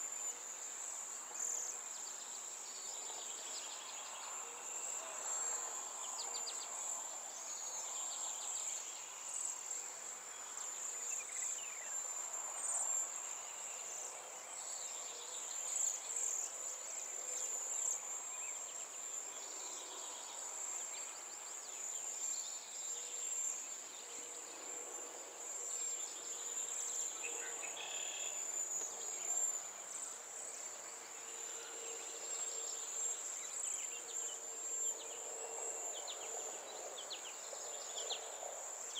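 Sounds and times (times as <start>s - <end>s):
insects trilling: 24.9s - 38.9s.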